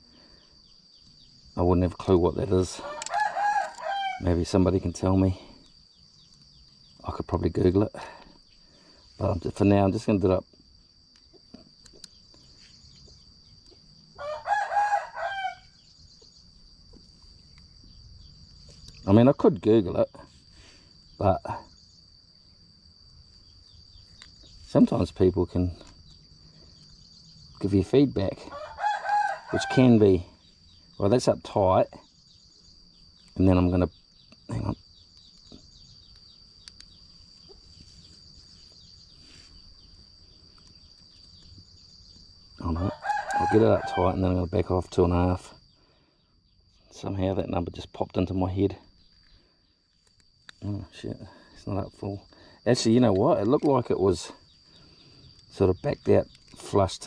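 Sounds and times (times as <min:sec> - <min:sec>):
high-pitched insect drone: 0:00.0 - 0:57.0
rooster crowing: 0:02.7 - 0:04.3, 0:14.2 - 0:15.8, 0:28.4 - 0:30.0, 0:42.6 - 0:44.2
faint bird chirps: 0:10.8 - 0:22.7
small clicks: 0:35.1 - 0:37.0.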